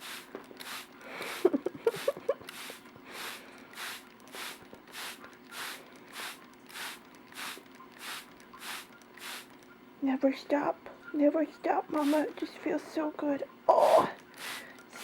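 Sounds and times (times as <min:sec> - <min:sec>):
spray bottle squirting mist: 0:00.0 - 0:09.6, 0:11.9 - 0:12.4, 0:13.8 - 0:15.0.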